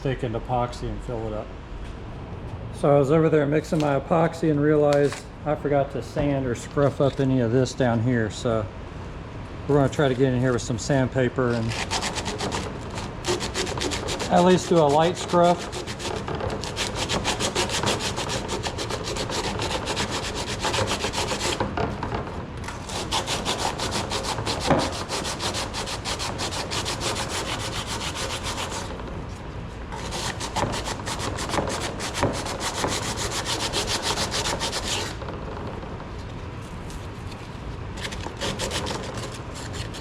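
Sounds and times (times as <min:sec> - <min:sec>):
sandpaper rubbing strokes: 0:11.5 - 0:21.6, 0:22.8 - 0:29.0, 0:29.9 - 0:35.2, 0:38.0 - 0:40.0.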